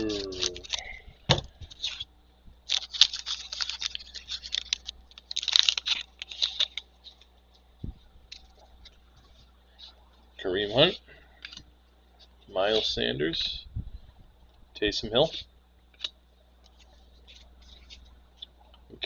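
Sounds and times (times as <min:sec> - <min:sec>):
plastic wrapper tearing and crinkling: 0:00.0 - 0:00.9, 0:01.7 - 0:07.3.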